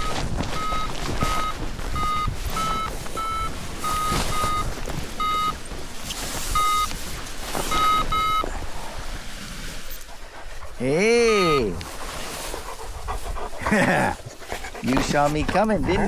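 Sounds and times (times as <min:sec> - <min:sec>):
variometer short beeps: 0:00.0 - 0:05.6, 0:06.6 - 0:06.9, 0:07.7 - 0:08.4.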